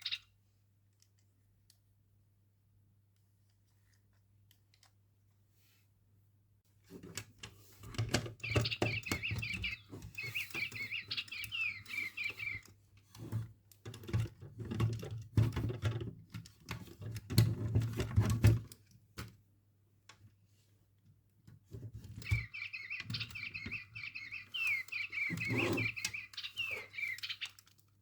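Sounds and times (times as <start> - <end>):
electronic toy bird chirping: 0.0 - 0.3, 8.4 - 12.7, 22.2 - 27.7
toy handling clicks and taps: 3.1 - 5.0, 7.0 - 19.4, 21.5 - 28.0.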